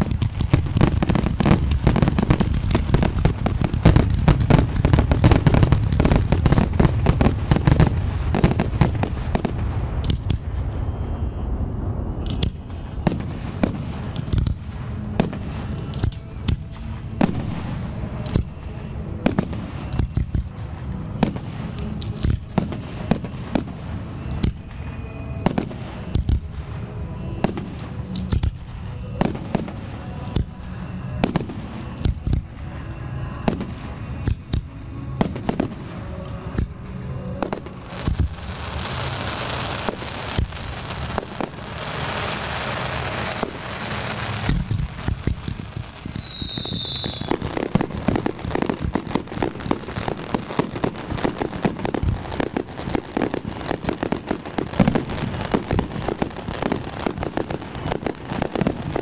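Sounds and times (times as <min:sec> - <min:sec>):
dense steady hiss: 0:00.0 - 0:59.0
music: 0:00.0 - 0:59.0.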